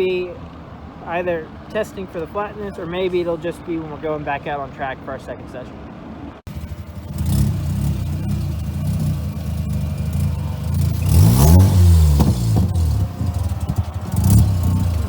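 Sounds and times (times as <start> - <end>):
rotary engine running unsteadily: 6.5 - 15.0.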